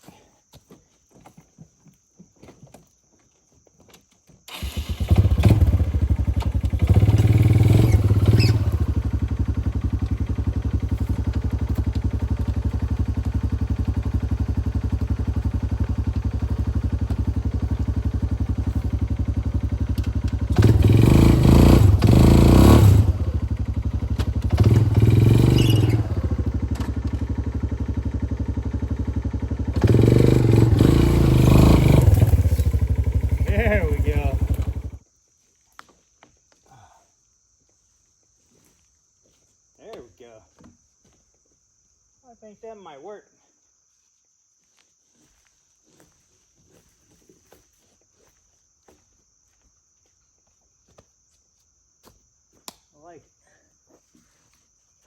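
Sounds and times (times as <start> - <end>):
atv engine revving: 4.5 - 35.0.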